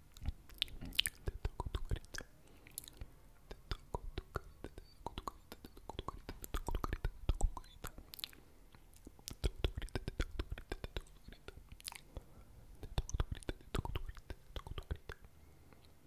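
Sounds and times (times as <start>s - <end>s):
wet chewing: 9.0s - 12.1s.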